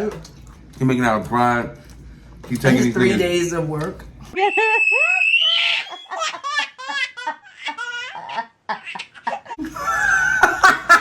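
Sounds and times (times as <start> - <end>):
hearty human laughter: 8.4 - 11.0.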